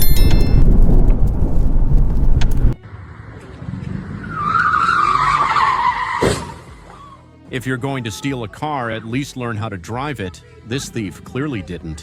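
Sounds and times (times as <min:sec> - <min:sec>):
loud low rumble of tornado wind: 0:00.0 - 0:02.8
car tyres squealing in a skid: 0:03.8 - 0:07.2.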